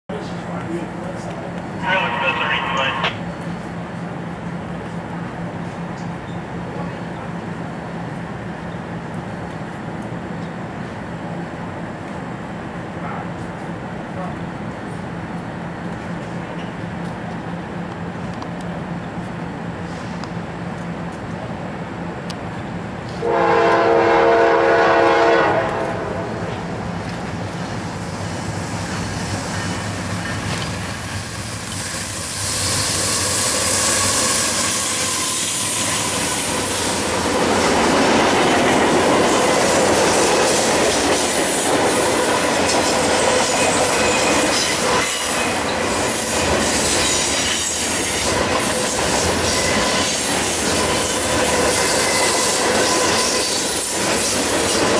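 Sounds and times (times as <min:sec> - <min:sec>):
train horn blast: 0:23.2 - 0:26.4
wheel squeal: 0:25.9 - 0:36.5.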